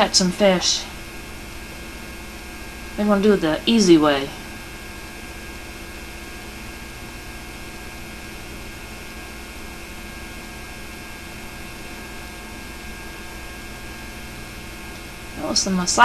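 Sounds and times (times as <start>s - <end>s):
electrical mains hum: 0.0s - 16.0s
tape hiss: 0.0s - 16.0s.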